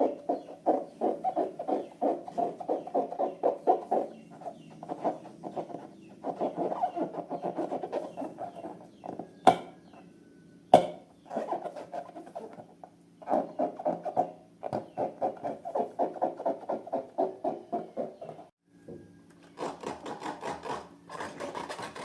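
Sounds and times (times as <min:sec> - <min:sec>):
rubber balloons squeaking: 0:00.0 - 0:09.2, 0:11.2 - 0:18.5.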